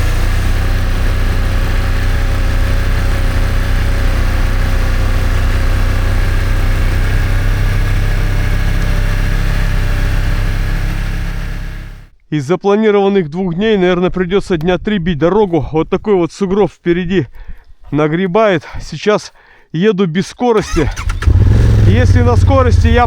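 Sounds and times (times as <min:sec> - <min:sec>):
snowmobile engine running: 0:00.0 - 0:12.1, 0:20.6 - 0:23.0.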